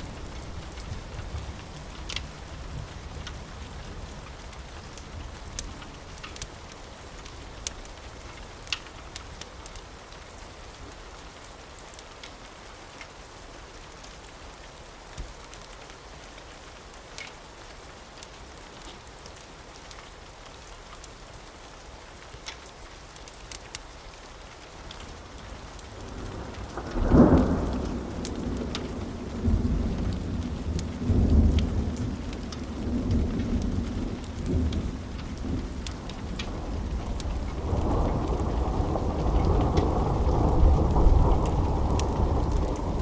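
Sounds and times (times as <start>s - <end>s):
steady rain: 0.0s - 43.0s
rolling thunder rumbles: 26.0s - 43.0s.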